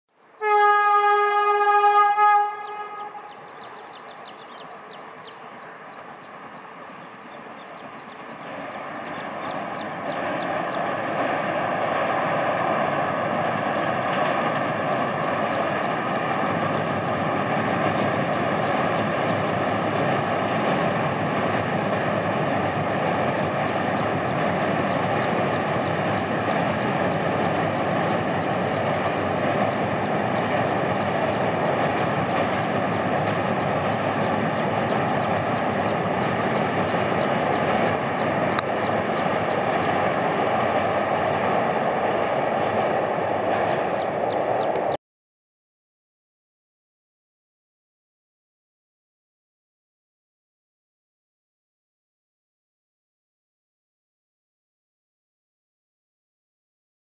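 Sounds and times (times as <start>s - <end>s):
train rumbling over steel bridge: 0.2s - 45.0s.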